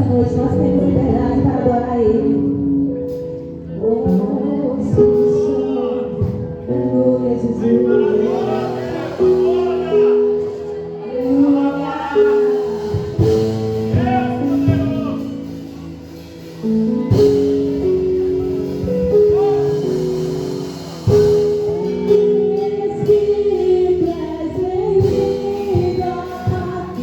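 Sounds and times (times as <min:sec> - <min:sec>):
sustained instrumental chords: 0:00.0 - 0:27.0
people singing: 0:07.2 - 0:15.5.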